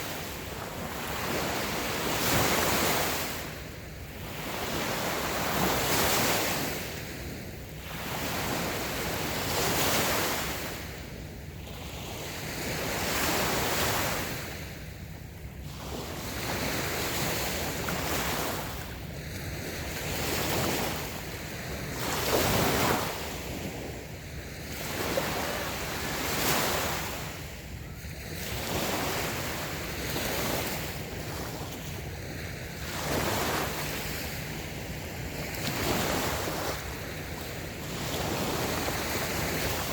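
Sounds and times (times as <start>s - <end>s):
small waves washing onto beach: 0.0s - 39.9s.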